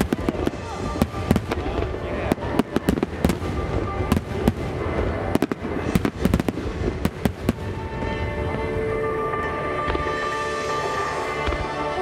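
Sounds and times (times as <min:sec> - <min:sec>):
music with held tones: 0:00.0 - 0:12.0.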